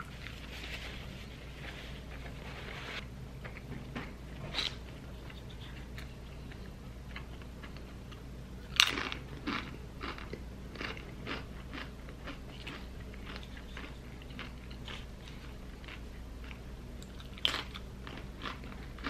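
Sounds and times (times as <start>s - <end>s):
crunchy chewing: 4.5s - 19.0s
tortilla chip crunching: 8.7s - 19.0s.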